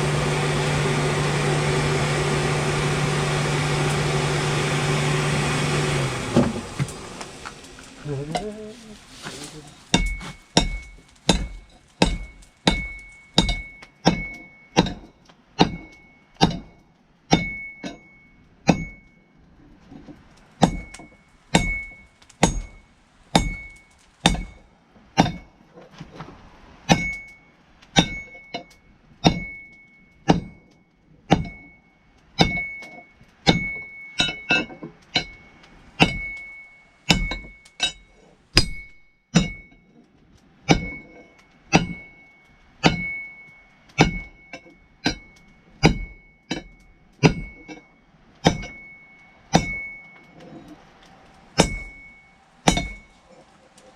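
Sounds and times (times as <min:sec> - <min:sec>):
hammer striking steel on anvil: 0:09.9 - 0:19.2, 0:20.6 - 0:24.6, 0:25.2 - 0:25.5, 0:26.9 - 0:27.4, 0:28.0 - 0:31.8, 0:32.4 - 0:39.9, 0:40.6 - 0:50.4, 0:51.6 - 0:53.2
high anvil ring: 0:10.0 - 0:19.4, 0:20.6 - 0:25.5, 0:26.9 - 0:40.0, 0:40.7 - 0:50.7, 0:51.6 - 0:53.3.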